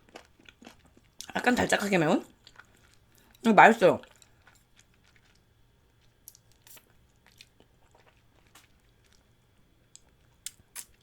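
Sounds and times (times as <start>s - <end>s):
person chewing with mouth clicks: 6.0s - 9.3s.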